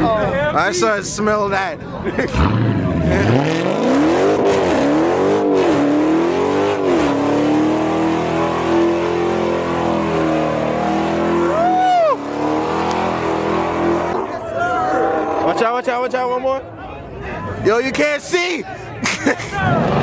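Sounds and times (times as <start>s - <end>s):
car engine revving hard: 2.3s - 14.2s.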